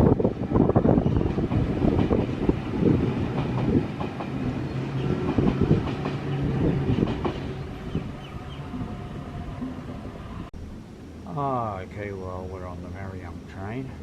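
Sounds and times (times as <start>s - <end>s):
train wheels clicking over rail joints: 1.0s - 8.0s.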